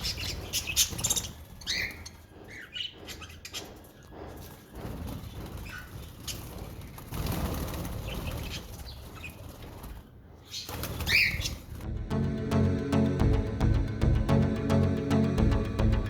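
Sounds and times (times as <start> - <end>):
budgerigar wings flapping: 4.9 - 11.8
music: 11.9 - 16.0.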